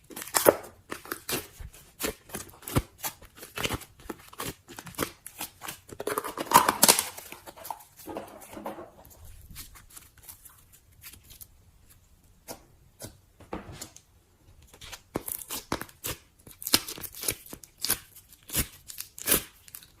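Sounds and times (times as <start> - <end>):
slime crackling and popping: 0.1 - 8.0, 15.1 - 20.0.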